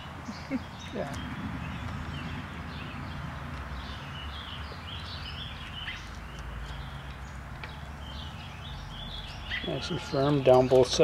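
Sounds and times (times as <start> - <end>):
songbirds chirping: 0.0 - 11.0
steady low rumble: 0.5 - 7.1.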